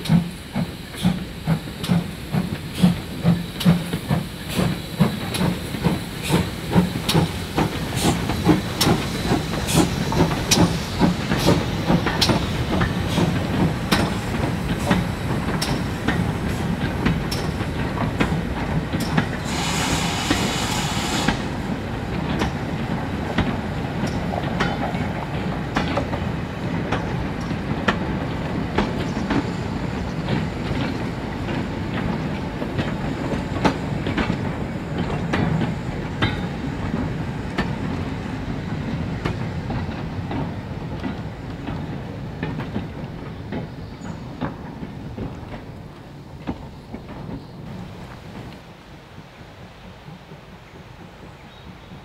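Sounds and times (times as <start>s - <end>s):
wheels clicking over rail joints: 1.8s - 52.0s
steady low rumble of wagons: 21.4s - 52.0s.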